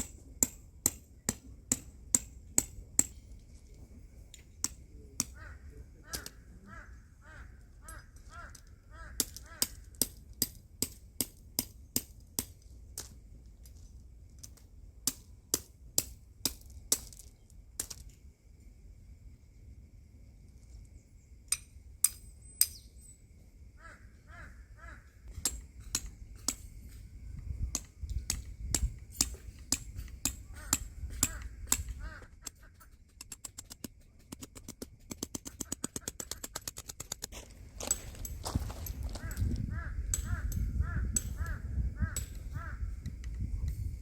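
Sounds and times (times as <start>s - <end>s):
sharp clicks and knocks: 27.7s - 41.5s
birds calling: 30.2s - 36.8s, 38.8s - 43.0s.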